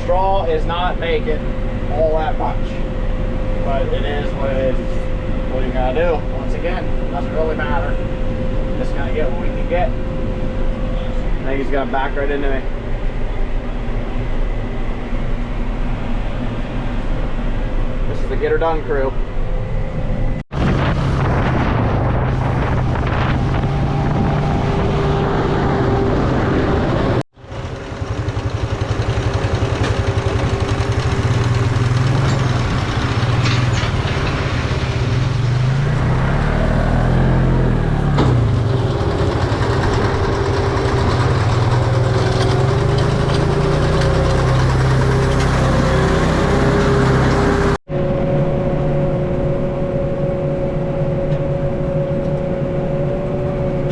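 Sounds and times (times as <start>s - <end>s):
tractor engine under load: 26.4s - 47.8s.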